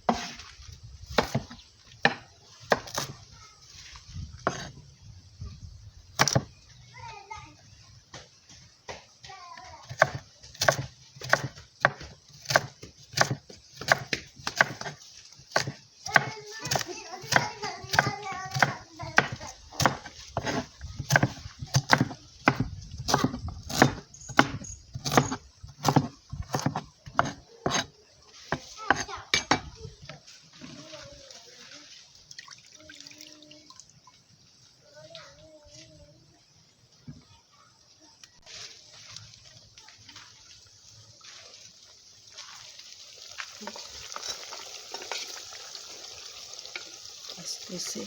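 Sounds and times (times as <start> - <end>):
knife chopping on cutting board: 1.2 - 3.1, 9.9 - 27.9, 28.5 - 29.7.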